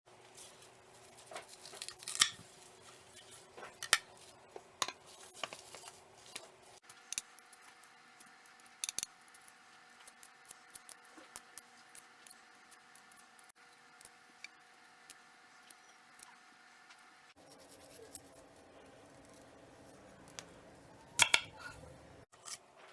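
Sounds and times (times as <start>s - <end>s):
utensils and dishes clicking: 4.8s - 12.4s, 20.3s - 22.6s.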